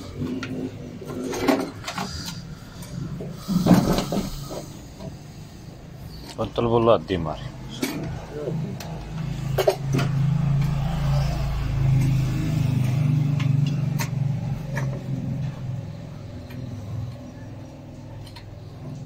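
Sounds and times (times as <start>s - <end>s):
vehicle engine running: 7.4s - 19.0s.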